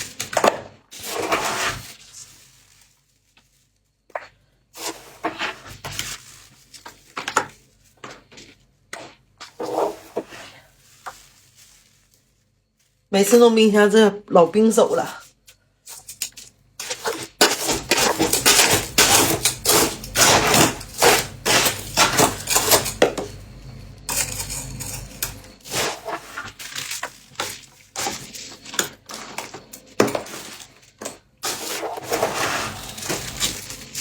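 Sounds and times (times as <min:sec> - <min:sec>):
frost crunching: 0:09.5 - 0:15.3, 0:16.0 - 0:34.0.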